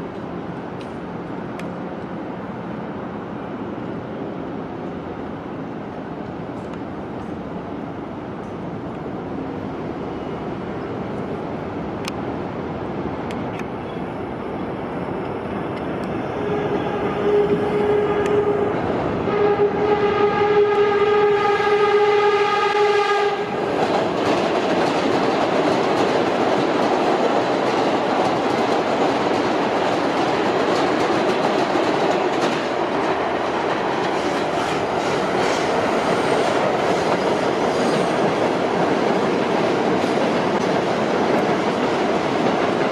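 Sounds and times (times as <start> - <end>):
train wheels running on rail: 0.0 - 42.9
subway train horn: 15.8 - 24.0, 32.8 - 38.8.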